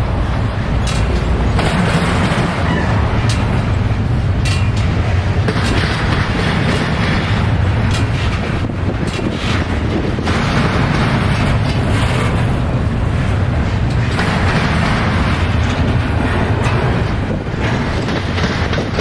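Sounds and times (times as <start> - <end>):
freight train rumbling past: 0.0 - 19.0
sharp clicks and knocks: 0.8 - 12.8.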